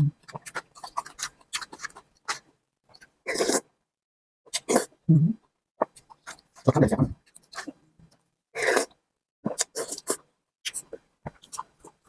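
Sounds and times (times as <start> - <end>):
chewing clicks and crackles: 0.2 - 3.2, 9.6 - 12.0.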